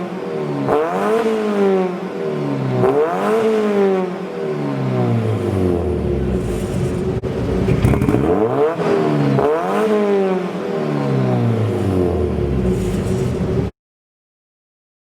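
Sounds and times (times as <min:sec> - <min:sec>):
car engine accelerating: 0:04.8 - 0:13.7.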